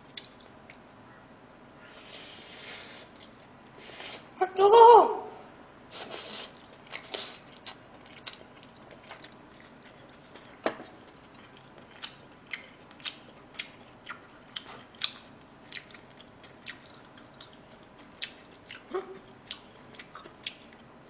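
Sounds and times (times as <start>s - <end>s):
mouth clicks while chewing: 0.0s - 0.8s, 11.3s - 20.9s.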